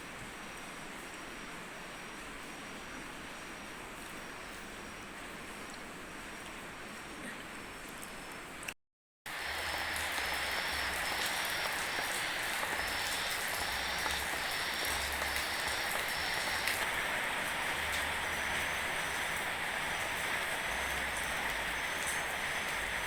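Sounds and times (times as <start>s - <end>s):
rain-like rushing noise: 9.3s - 23.0s
faint pulsing high tone: 9.5s - 23.0s.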